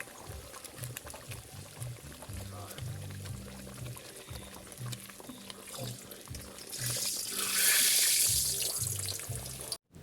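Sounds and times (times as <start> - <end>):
water running from a tap: 5.6 - 9.8.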